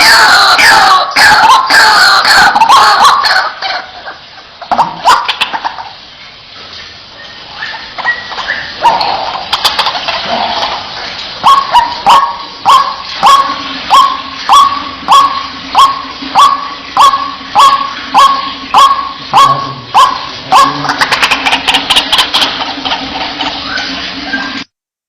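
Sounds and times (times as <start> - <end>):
bird giving loud kwak calls: 11.4 - 24.6.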